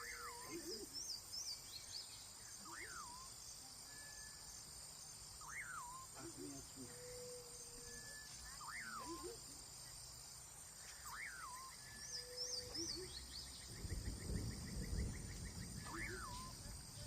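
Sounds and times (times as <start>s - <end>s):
high insect buzz: 0.0s - 17.0s
high bird chirps: 11.0s - 16.7s.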